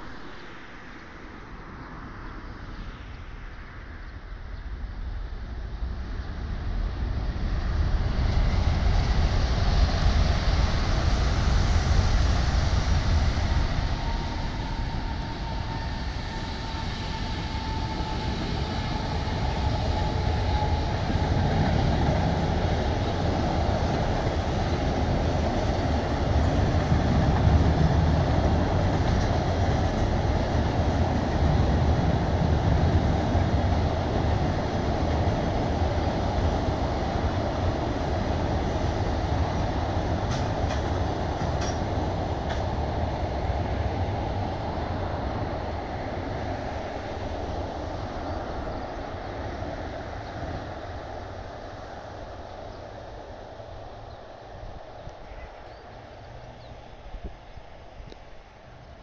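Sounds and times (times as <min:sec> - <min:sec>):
faint high whine: 0:00.0 - 0:23.4
train wheels rumbling on bridge: 0:06.1 - 0:59.0.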